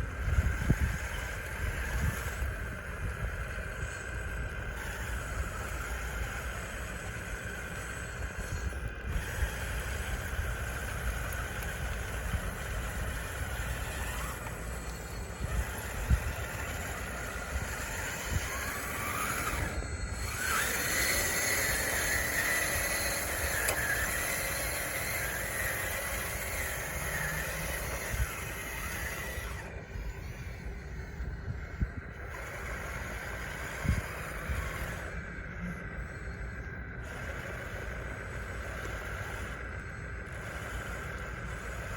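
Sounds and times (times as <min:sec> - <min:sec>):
electric motors whining: 0:00.0 - 0:41.9.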